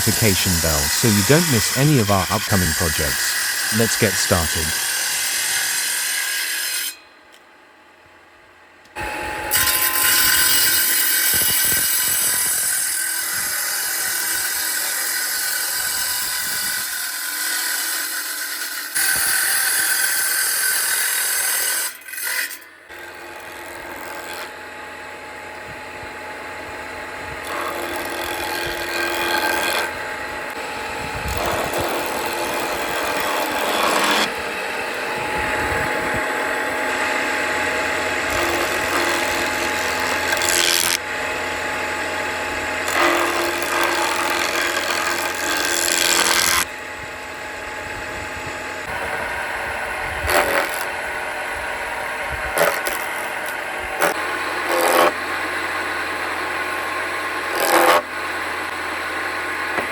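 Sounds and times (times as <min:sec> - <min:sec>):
woodworking machine working wood: 0:09.5 - 0:59.9.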